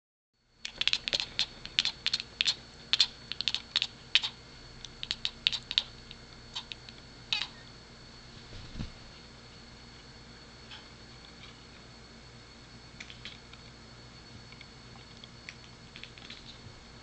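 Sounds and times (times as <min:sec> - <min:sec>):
cat chattering clicks: 0:00.6 - 0:05.9, 0:06.5 - 0:07.5, 0:13.0 - 0:13.4, 0:15.5 - 0:16.6
cat chirp: 0:07.3 - 0:07.7.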